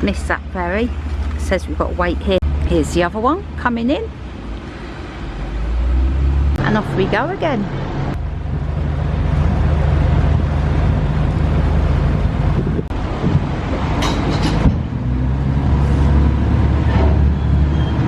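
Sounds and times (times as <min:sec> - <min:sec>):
diesel engine humming: 0:00.0 - 0:18.0
wind buffeting microphone: 0:05.8 - 0:18.0.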